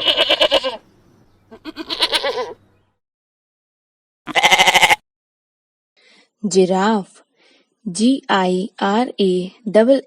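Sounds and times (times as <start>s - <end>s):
goat bleating: 0.0s - 0.8s, 1.5s - 2.6s, 4.3s - 5.0s.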